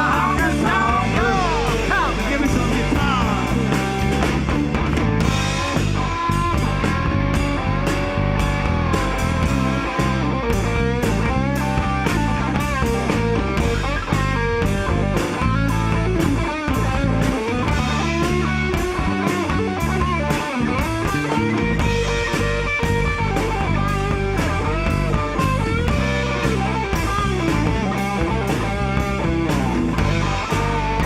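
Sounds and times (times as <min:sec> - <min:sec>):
bass guitar: 0:00.0 - 0:31.0
electric guitar solo: 0:00.0 - 0:31.0
steady drum beat: 0:00.0 - 0:31.0.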